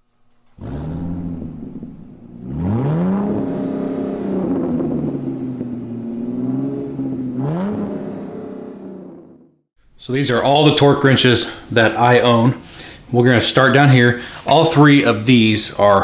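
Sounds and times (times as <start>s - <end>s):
car engine revving: 0.3s - 9.7s.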